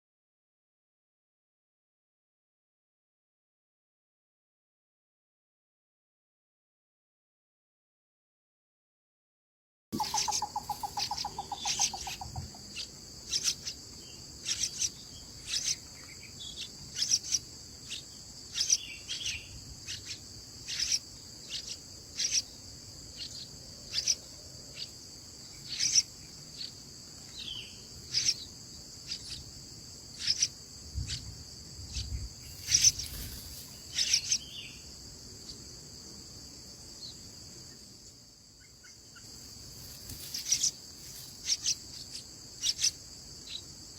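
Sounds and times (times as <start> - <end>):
sharp high chirps: 10.0 - 12.6
insect drone: 10.0 - 43.9.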